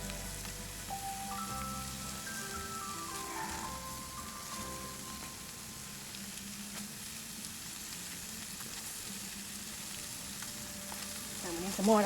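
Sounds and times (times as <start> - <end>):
food sizzling in frying: 0.0 - 12.0.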